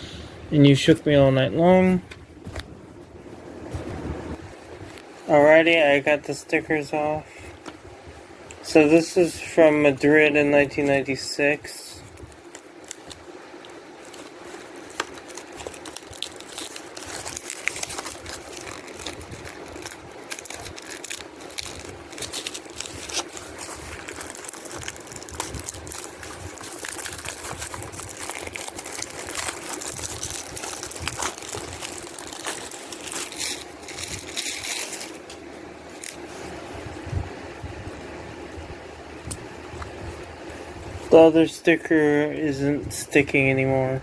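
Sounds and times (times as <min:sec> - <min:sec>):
plastic packaging crinkling: 0:09.2 - 0:36.4.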